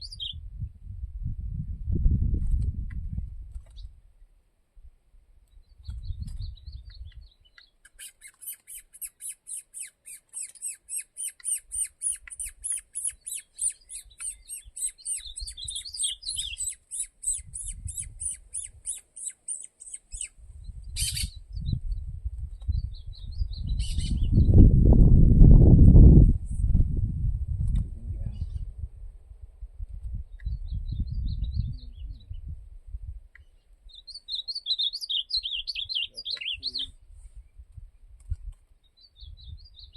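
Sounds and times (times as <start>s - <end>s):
songbird trilling: 0.0s - 0.4s, 5.8s - 21.8s, 22.8s - 24.6s, 33.4s - 36.9s
short bird calls: 7.0s - 20.4s, 21.0s - 21.4s, 33.4s - 37.0s.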